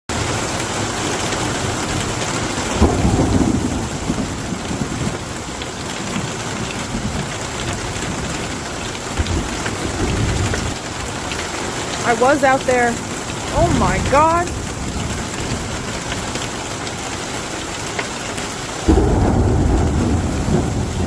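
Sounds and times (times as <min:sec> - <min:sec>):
heavy rain pouring: 0:00.1 - 0:21.0
thunder rumble: 0:01.6 - 0:10.8, 0:12.9 - 0:16.6, 0:18.8 - 0:21.0.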